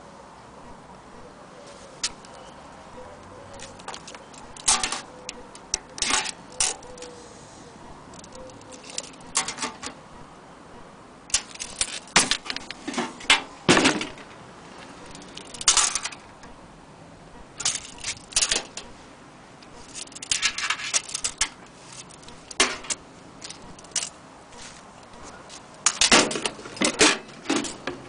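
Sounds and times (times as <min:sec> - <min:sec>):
toy clicking and clattering: 0:03.6 - 0:07.2, 0:08.1 - 0:09.6, 0:11.3 - 0:12.8, 0:15.1 - 0:16.3, 0:17.6 - 0:18.9, 0:19.6 - 0:24.2.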